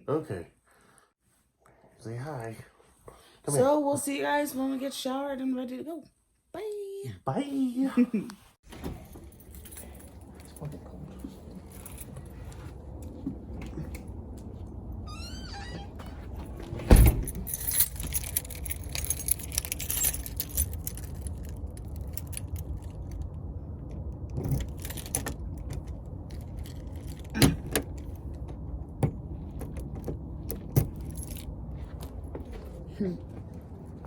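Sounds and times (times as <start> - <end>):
keys jangling: 8.7 - 13.1, 16.4 - 23.3, 24.4 - 28.4, 29.6 - 32.6
low rumble: 9.4 - 34.0
heavy thump: 16.6 - 17.5.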